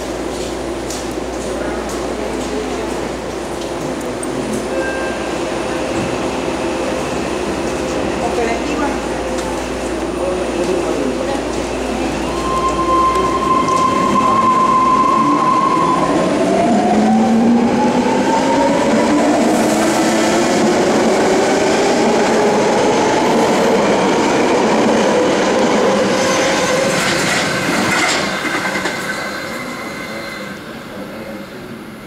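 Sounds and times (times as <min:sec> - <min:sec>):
train wheels rumbling on rails: 0:00.0 - 0:31.9
electric train whine rising: 0:11.8 - 0:30.2.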